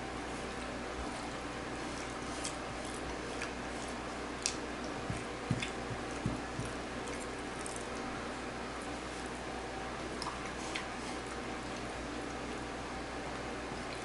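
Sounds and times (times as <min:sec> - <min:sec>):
low room hum: 0:00.0 - 0:14.0
person chewing food: 0:00.5 - 0:08.1
soft low thumps: 0:05.0 - 0:06.8.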